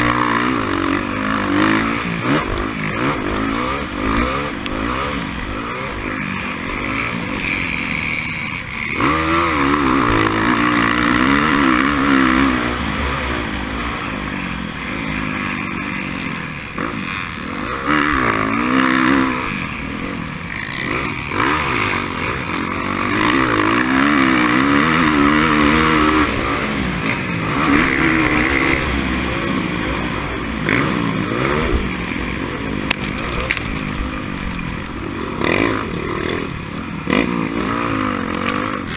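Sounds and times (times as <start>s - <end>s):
racing motorcycle engine revving: 0.0s - 38.9s.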